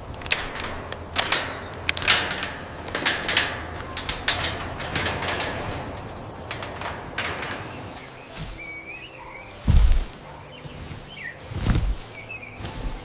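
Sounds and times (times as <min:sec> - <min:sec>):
sharp clicks and creaks: 0:00.0 - 0:09.4
steady low hum: 0:00.0 - 0:13.0.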